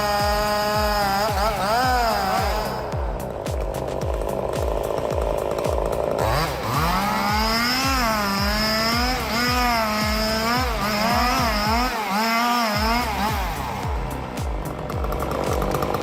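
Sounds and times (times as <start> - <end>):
background music with kick drum: 0.0 - 16.0
chainsaw cutting a log: 0.0 - 16.0.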